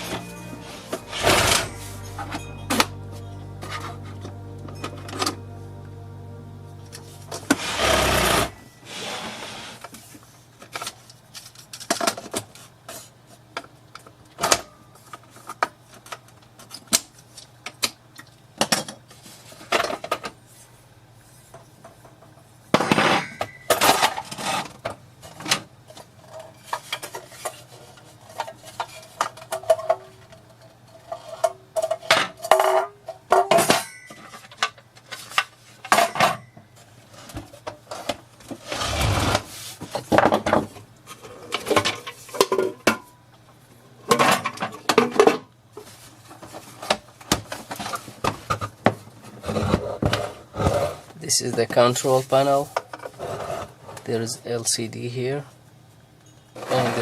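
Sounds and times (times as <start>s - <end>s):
faint low hum: 0.0s - 9.0s.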